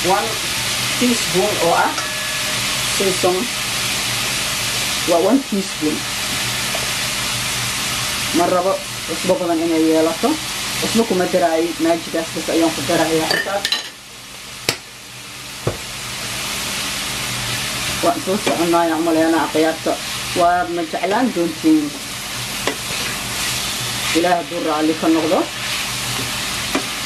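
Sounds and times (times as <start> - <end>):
chicken and onion sizzling in pan: 0.0 - 27.0
spoon scraping pan: 22.6 - 24.4.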